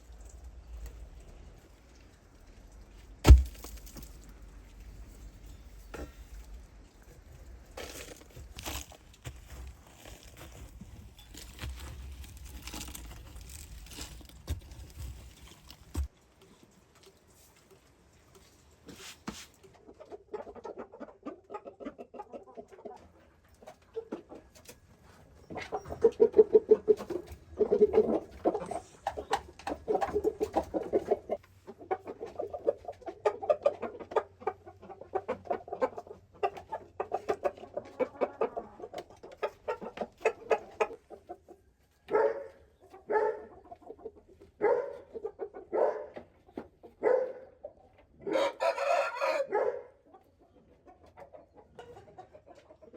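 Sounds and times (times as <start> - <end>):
chickens clucking: 19.6 - 52.9.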